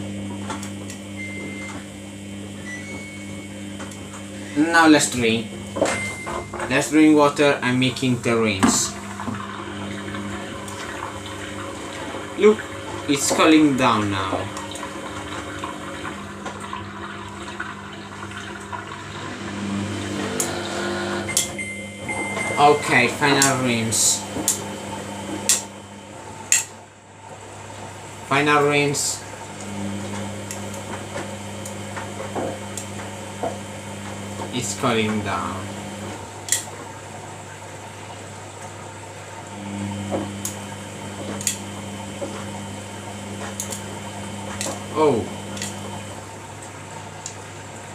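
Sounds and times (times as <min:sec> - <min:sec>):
washing machine hum: 0:00.0 - 0:47.9
water rushing into drum: 0:04.2 - 0:21.3.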